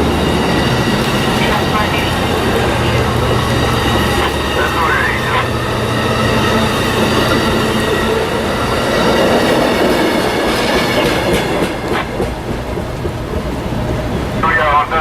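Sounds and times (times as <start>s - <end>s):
wheels clicking over rail joints: 0.0s - 5.6s
train rumbling past: 0.0s - 15.0s.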